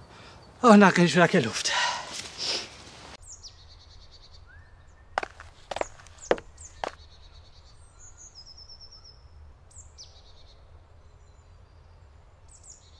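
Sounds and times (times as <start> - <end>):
small birds calling: 2.3 - 10.6
footstep crunch on gravel: 5.2 - 7.0.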